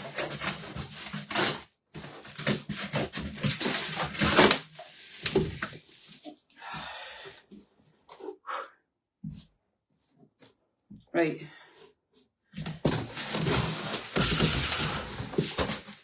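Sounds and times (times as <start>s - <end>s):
polystyrene squeaking on cardboard: 2.2s - 6.4s, 13.1s - 16.0s.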